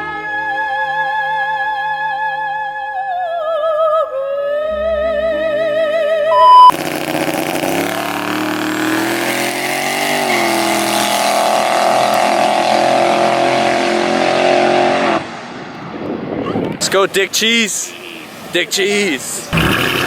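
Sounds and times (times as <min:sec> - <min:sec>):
short loud beep: 0:06.3 - 0:06.8
car engine revving high: 0:06.4 - 0:15.7.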